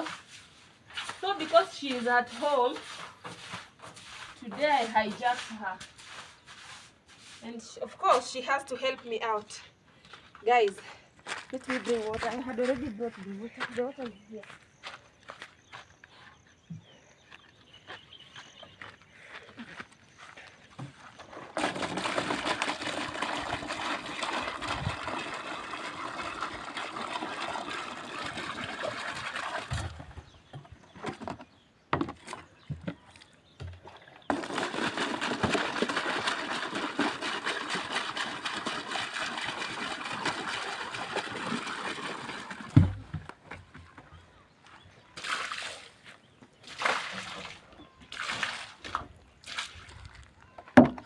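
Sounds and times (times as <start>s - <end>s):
water pouring onto floor: 34.3s - 42.9s
thump: 42.8s - 43.3s.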